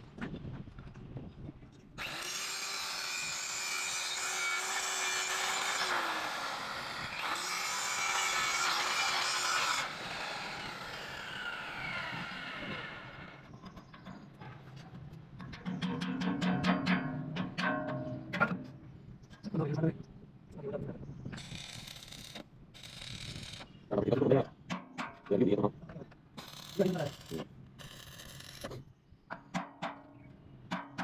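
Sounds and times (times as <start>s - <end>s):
power tool grinding steel: 2.0s - 13.3s.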